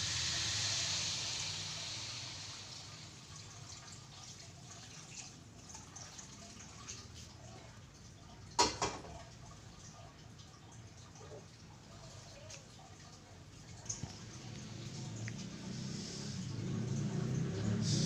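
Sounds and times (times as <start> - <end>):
hiss: 0.0 - 3.4, 15.5 - 18.0.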